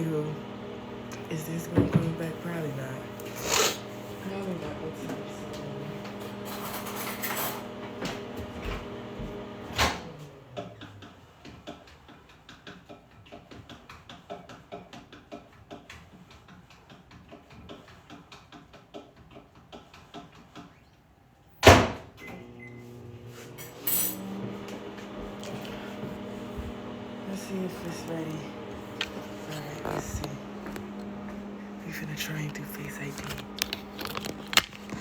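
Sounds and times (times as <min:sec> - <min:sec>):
door slamming shut: 0:21.6 - 0:22.1.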